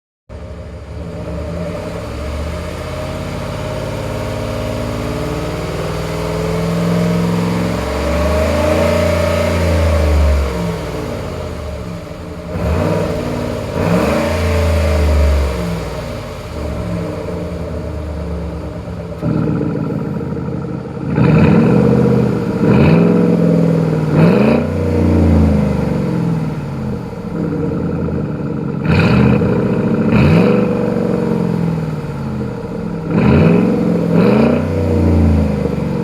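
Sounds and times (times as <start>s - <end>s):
car engine revving: 0.3s - 36.0s.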